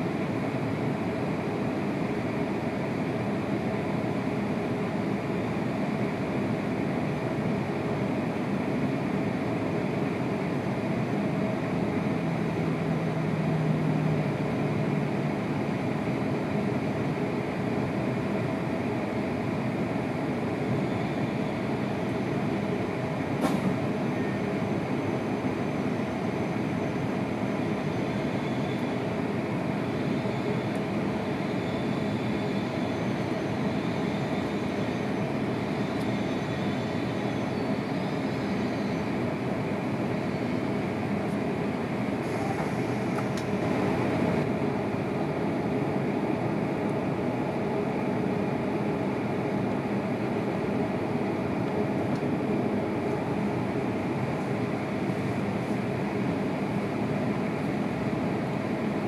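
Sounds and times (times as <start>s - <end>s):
faint high squeals: 33.9s - 39.1s
train cabin noise: 40.6s - 57.8s.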